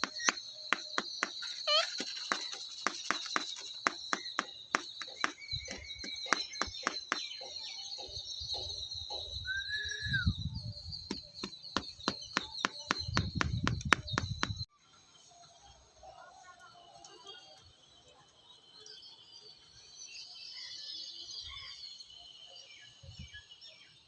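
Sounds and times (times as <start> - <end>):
sharp clicks: 0.0 - 7.3
birds chirping: 0.0 - 14.7
falling whistled call: 9.4 - 13.4.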